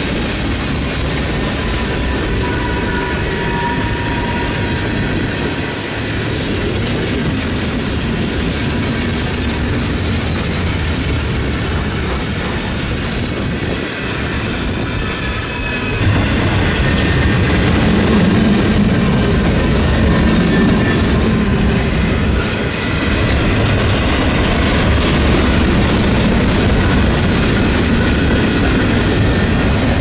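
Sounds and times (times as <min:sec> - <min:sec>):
train wheels rumbling on rails: 0:00.0 - 0:30.0
faint high squeal: 0:00.8 - 0:06.1, 0:10.2 - 0:17.7.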